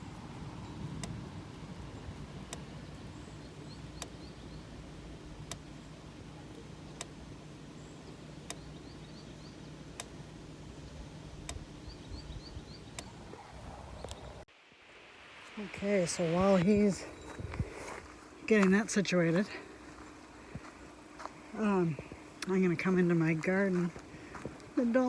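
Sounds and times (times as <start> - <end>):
electric fence energizer clicking: 0.0 - 14.4
small bird chirping: 0.0 - 14.5.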